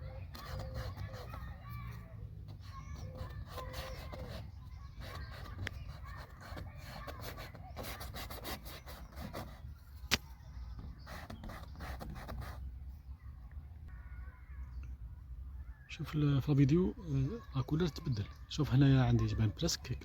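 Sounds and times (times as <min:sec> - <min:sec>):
paintbrush scrubbing on paper: 0:00.0 - 0:09.7, 0:11.0 - 0:12.7.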